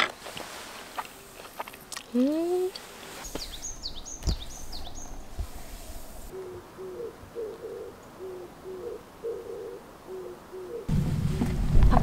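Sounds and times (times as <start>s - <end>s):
songbird chirps: 0.5s - 11.5s
bird hooting softly: 3.4s - 11.6s.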